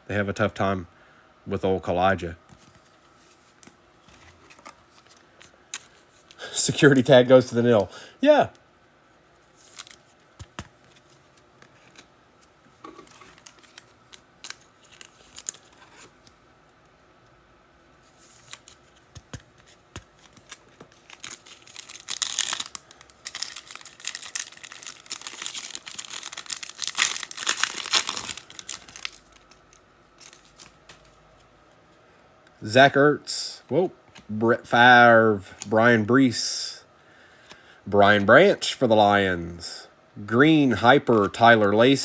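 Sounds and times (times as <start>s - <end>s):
card pack wrappers crinkling: 9.6s - 11.1s, 12.9s - 16.2s, 18.2s - 31.2s
wrappers tearing: 14.4s - 16.1s, 20.2s - 31.1s.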